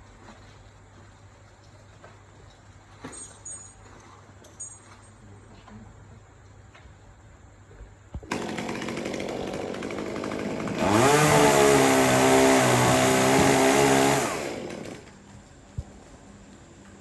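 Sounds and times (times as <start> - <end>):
chainsaw revving: 8.3 - 15.1.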